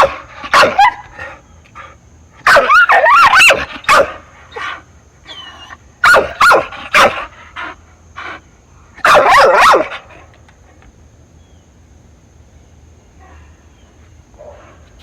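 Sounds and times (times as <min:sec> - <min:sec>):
puppy barking: 0:00.0 - 0:01.1, 0:02.4 - 0:04.7, 0:06.0 - 0:07.3, 0:09.0 - 0:10.1.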